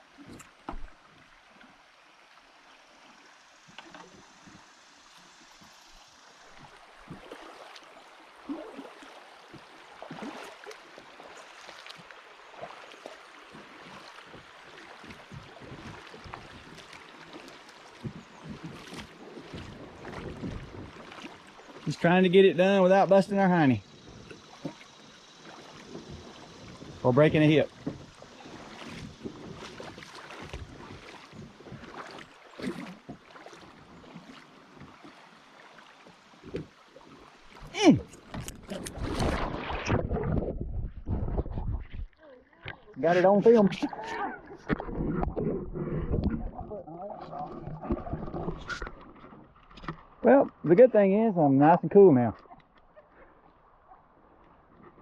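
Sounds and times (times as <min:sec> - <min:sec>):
river water washing: 0:00.0 - 0:40.5, 0:42.3 - 0:52.2
paddles splashing: 0:00.0 - 0:55.0
kayak knocking: 0:00.2 - 0:01.0, 0:12.6 - 0:42.0, 0:42.6 - 0:50.8.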